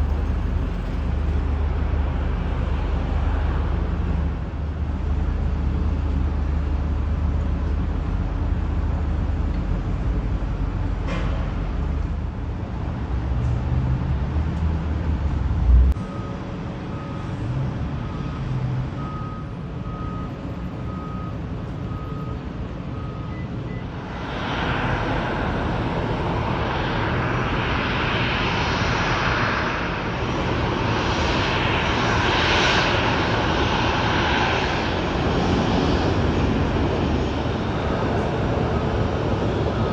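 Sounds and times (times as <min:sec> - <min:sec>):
jet engines rushing: 0:00.0 - 0:19.7, 0:21.3 - 0:39.9
low engine rumble: 0:00.0 - 0:39.9
faint repeating beep: 0:19.0 - 0:23.9.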